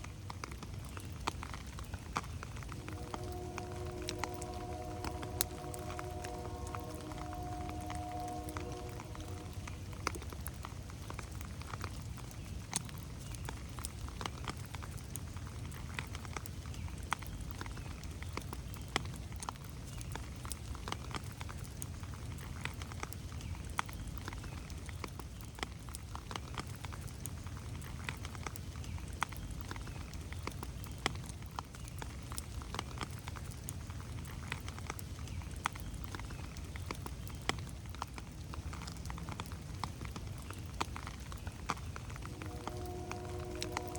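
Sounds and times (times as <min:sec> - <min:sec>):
raindrops pattering on leaves: 0:00.0 - 0:43.9
steady low rumble: 0:02.6 - 0:11.3, 0:41.3 - 0:43.9.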